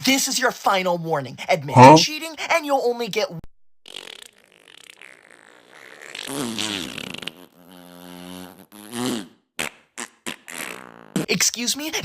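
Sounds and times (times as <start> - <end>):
warbling distorted vocal sound: 1.7 - 2.0.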